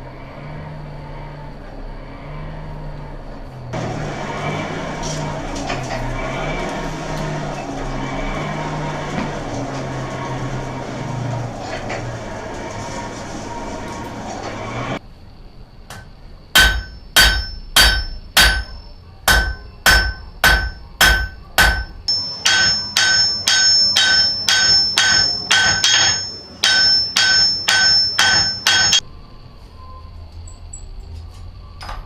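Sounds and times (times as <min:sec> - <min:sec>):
hammer striking metal anvil: 0:15.9 - 0:29.0.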